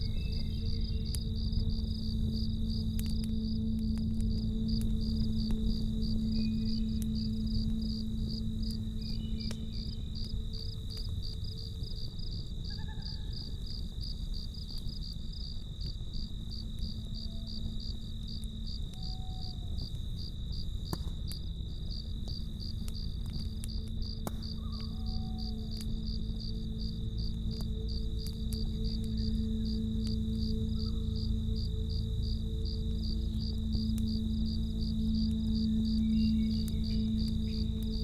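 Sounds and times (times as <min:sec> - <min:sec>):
low rumble: 0:00.0 - 0:12.5, 0:21.7 - 0:38.0
soft low hum: 0:00.0 - 0:13.0, 0:13.6 - 0:38.0
campfire crackling pops: 0:00.0 - 0:38.0
crickets chirping: 0:00.0 - 0:38.0.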